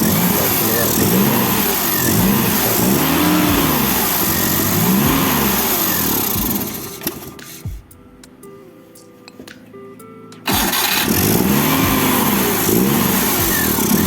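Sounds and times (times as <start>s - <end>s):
small petrol engine revving: 0.0s - 7.6s, 10.5s - 14.0s.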